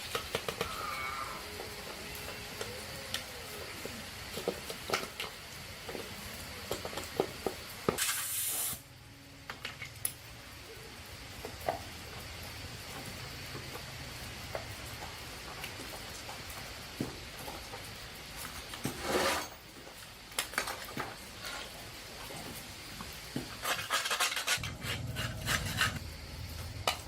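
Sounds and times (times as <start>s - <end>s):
spray hissing: 7.9s - 8.9s.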